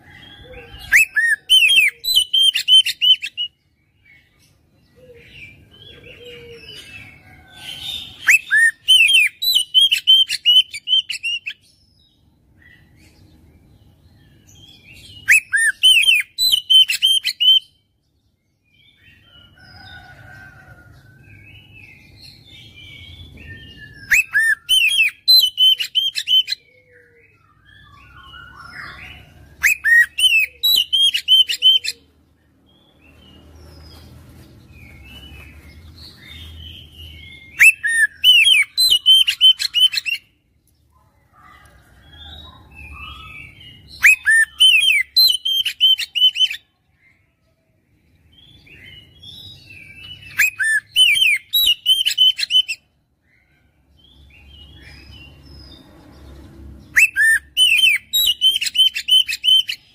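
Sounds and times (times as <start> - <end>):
magpie-robin singing: 0.2 - 4.3, 5.0 - 13.3, 13.9 - 17.8, 21.6 - 32.1, 34.8 - 40.4, 42.1 - 47.2, 48.4 - 53.4, 56.9 - 59.9.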